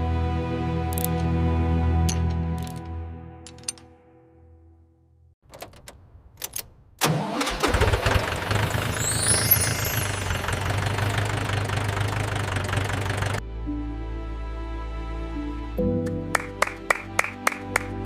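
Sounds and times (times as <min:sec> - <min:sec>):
tractor engine running: 0:05.5 - 0:13.4.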